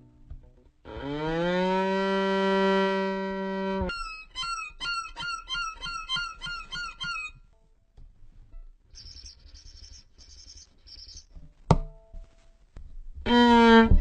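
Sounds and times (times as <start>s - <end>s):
violin mimicking animal calls: 1.7s - 7.4s, 13.2s - 14.0s.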